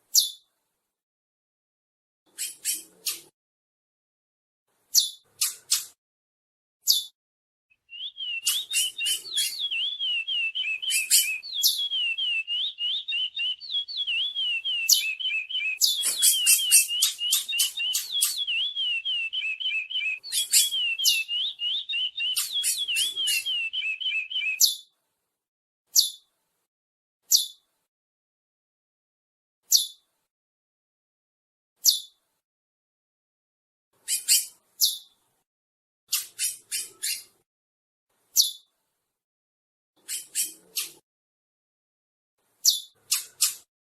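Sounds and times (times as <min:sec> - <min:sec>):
finches warbling and chirping: 0:02.3 - 0:03.3, 0:08.0 - 0:24.8, 0:34.0 - 0:35.1, 0:36.1 - 0:37.3, 0:40.0 - 0:41.0, 0:42.6 - 0:43.7.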